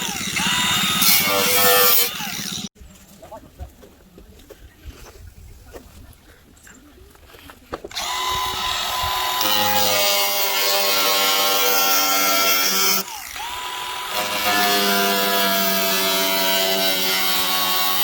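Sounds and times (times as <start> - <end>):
power tool cutting sheet metal: 0.0 - 2.7, 7.9 - 18.0.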